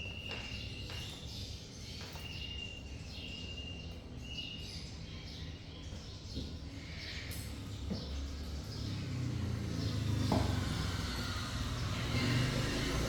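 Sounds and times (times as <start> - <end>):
bird chirps: 0.0 - 9.0.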